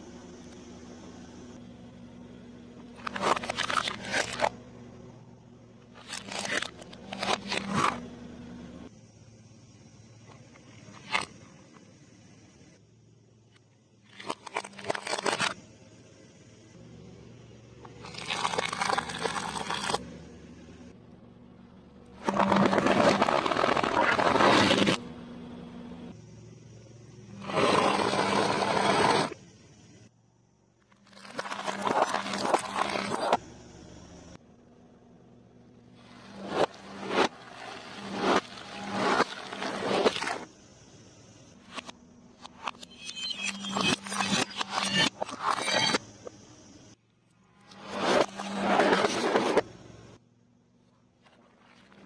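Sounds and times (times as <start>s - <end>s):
steady low hum: 0.0s - 52.0s
crunchy eating: 17.9s - 20.0s.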